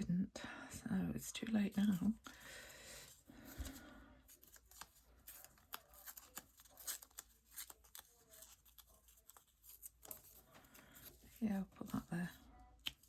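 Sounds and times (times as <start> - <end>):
paper rustling: 1.4 - 13.0
small clicks of paper pieces: 3.5 - 12.0, 12.8 - 13.0.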